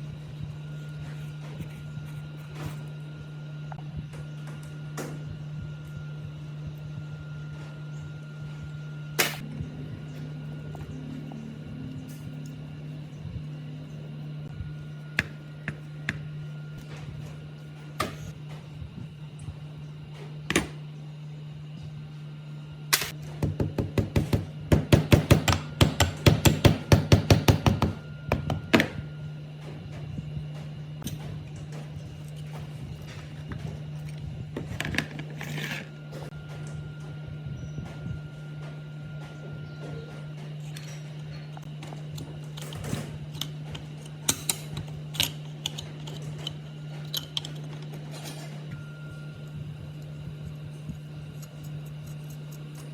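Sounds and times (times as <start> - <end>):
low hum: 0.0 - 23.4
steady low hum: 0.0 - 52.9.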